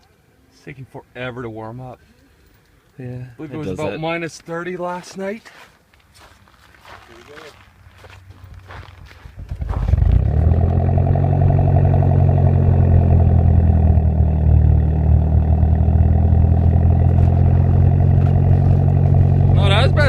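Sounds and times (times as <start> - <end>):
car engine running: 9.3 - 20.0
car engine cranking and starting: 9.4 - 20.0.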